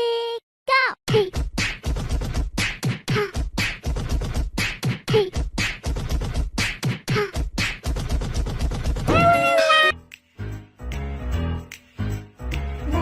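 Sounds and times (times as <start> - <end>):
beatboxing percussive hits: 1.1 - 9.3.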